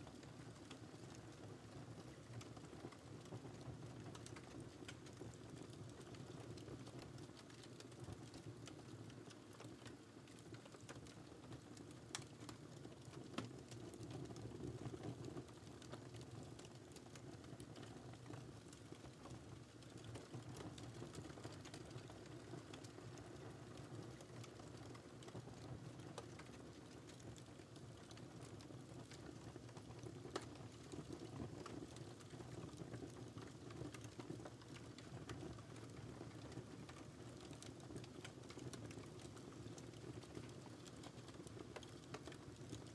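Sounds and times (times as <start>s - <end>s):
wood fire crackling: 0.1s - 42.9s.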